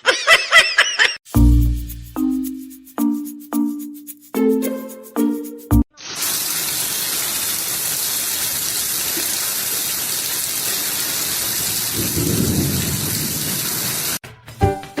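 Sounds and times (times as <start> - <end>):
heavy rain hissing: 6.0 - 14.2
low thunder rumble: 11.9 - 13.9.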